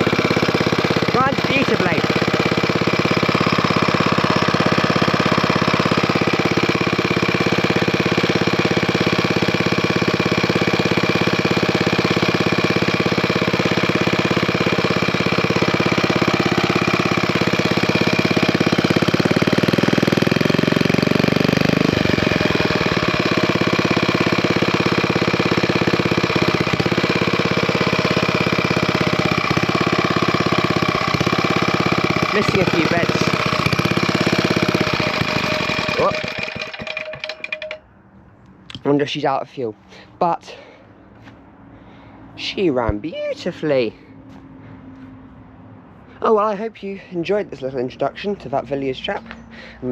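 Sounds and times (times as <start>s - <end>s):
stationary engine running: 0.0s - 37.9s.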